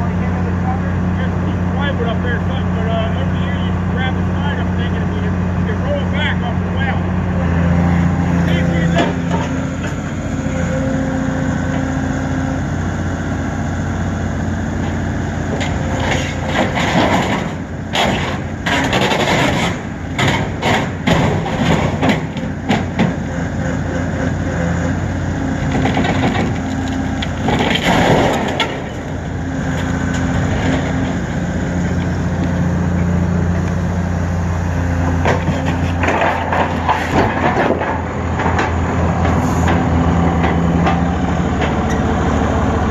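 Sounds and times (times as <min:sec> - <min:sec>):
excavator engine running: 0:00.0 - 0:42.9
panels cracking and crunching: 0:15.5 - 0:23.2, 0:25.6 - 0:32.6, 0:35.2 - 0:41.0.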